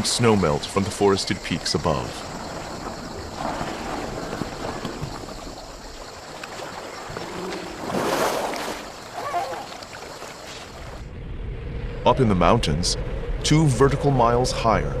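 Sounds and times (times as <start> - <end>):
elephants splashing in water: 0.0 - 11.0
running water: 0.0 - 11.0.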